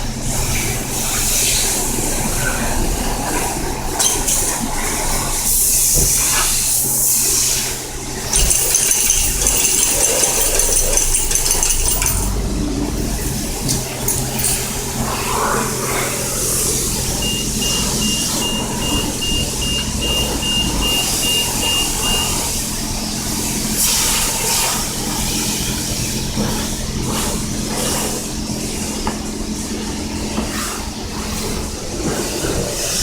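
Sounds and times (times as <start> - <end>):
short high beeps: 17.2 - 22.4.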